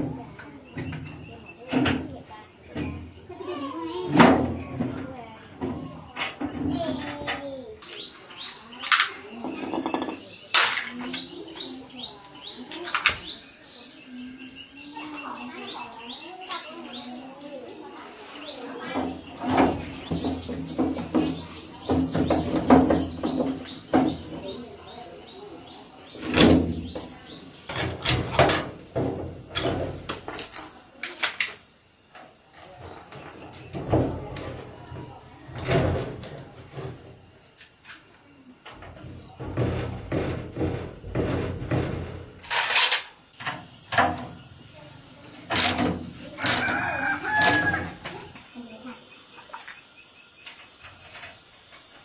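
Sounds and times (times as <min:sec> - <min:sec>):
rattle of work noise: 0:04.1 - 0:13.4, 0:18.8 - 0:48.4, 0:50.4 - 0:52.0
small birds chirping: 0:04.6 - 0:37.5, 0:43.3 - 0:52.0
hard objects knocking and clattering: 0:08.8 - 0:11.2, 0:18.9 - 0:24.9, 0:38.6 - 0:44.5, 0:45.2 - 0:48.4.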